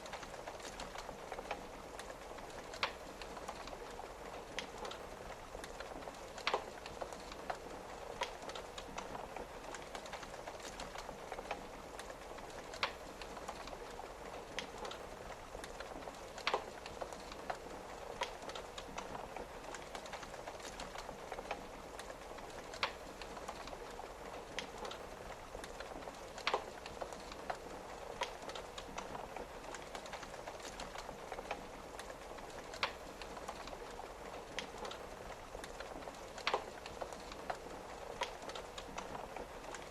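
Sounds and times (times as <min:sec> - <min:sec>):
rain on a window: 0:00.0 - 0:39.9
wood fire crackling and popping: 0:00.0 - 0:39.9.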